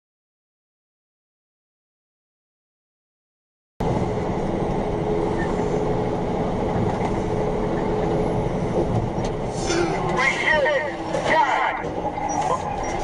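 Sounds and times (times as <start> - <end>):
loud vehicle rumble: 3.8 - 13.0.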